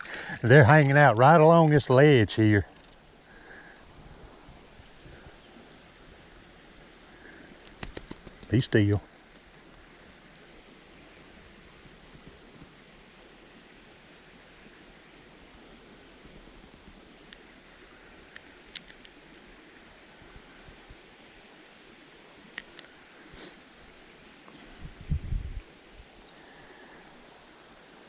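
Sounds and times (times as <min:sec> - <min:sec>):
crickets chirping: 0:00.0 - 0:28.0
faint clicks: 0:07.6 - 0:08.6, 0:18.3 - 0:19.2, 0:22.5 - 0:23.4.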